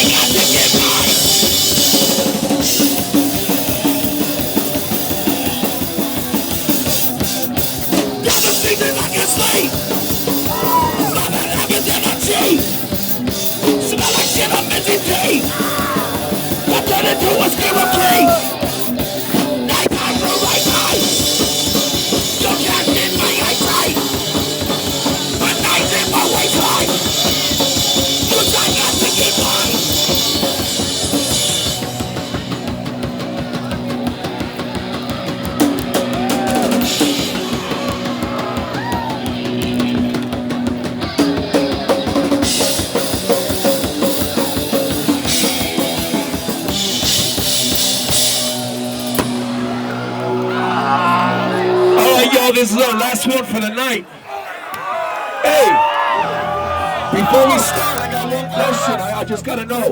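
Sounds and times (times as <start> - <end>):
shouted vocals: 0.0 - 1.6, 8.1 - 12.8, 13.7 - 30.7, 35.2 - 39.6, 49.6 - 59.9
distorted guitars and bass: 0.0 - 53.7, 55.5 - 59.9
fast drums: 0.0 - 54.0, 56.8 - 59.9.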